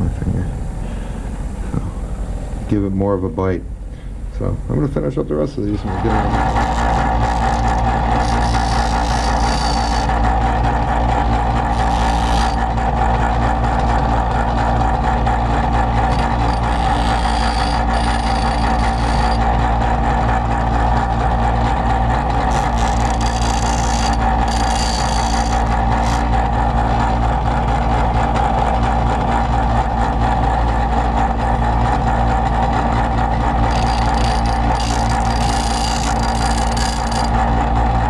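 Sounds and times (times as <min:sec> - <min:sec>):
grinding stone on metal: 0:05.8 - 0:27.3, 0:33.5 - 0:37.5
electric grinder running: 0:05.8 - 0:38.0.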